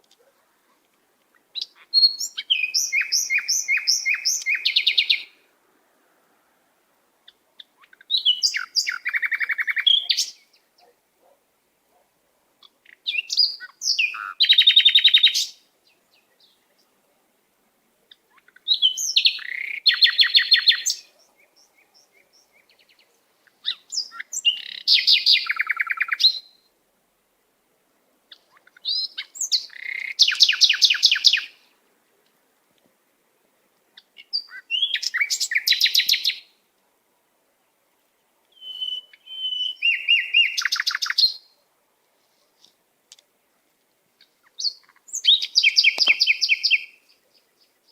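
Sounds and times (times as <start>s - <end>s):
songbird singing with trill: 1.3s - 5.4s, 7.2s - 11.4s, 12.6s - 17.0s, 18.1s - 26.7s, 28.3s - 31.7s, 34.0s - 36.6s, 38.5s - 41.6s, 44.2s - 47.9s.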